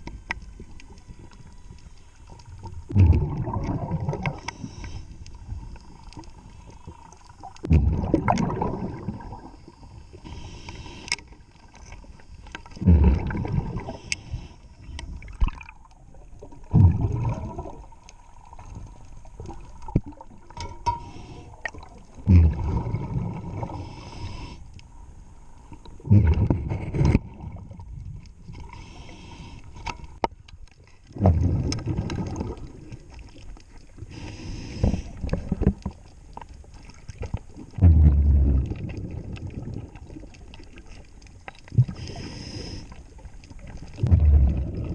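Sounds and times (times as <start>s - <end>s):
exhaled bubbles rushing: 2.6s - 4.5s, 7.0s - 9.8s, 12.8s - 14.0s, 15.2s - 20.5s, 21.7s - 23.9s, 31.2s - 33.0s, 36.8s - 40.9s, 43.6s - 44.9s.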